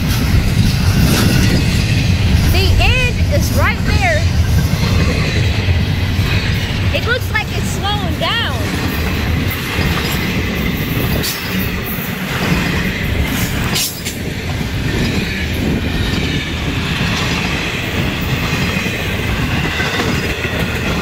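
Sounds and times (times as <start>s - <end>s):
freight cars rumbling past: 0.0s - 21.0s
wheels squealing on rail: 4.7s - 21.0s.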